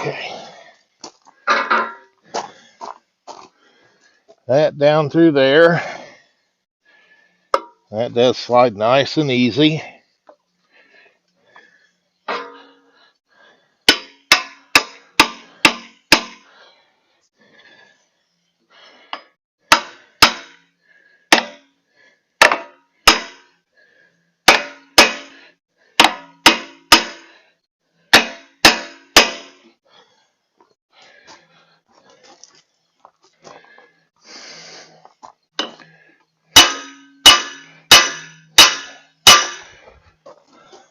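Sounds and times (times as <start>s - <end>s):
hammer striking metal: 12.3s - 12.7s, 13.9s - 16.5s, 19.7s - 20.6s, 21.3s - 21.7s, 22.4s - 23.5s, 24.5s - 25.4s, 26.0s - 27.3s, 28.1s - 29.6s, 35.6s - 35.8s, 36.6s - 39.7s.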